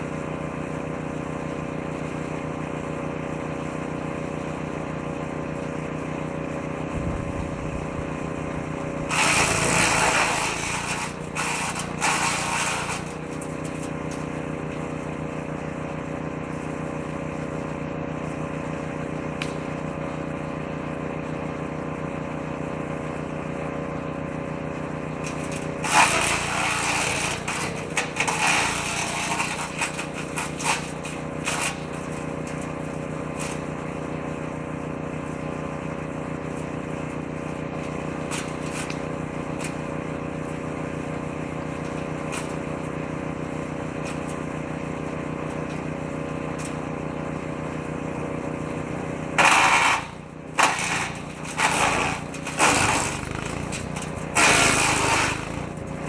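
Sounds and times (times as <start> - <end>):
woodchipper engine running: 0.0 - 56.0
shredder crackling clatter: 5.0 - 20.9, 25.0 - 47.1, 49.3 - 56.0.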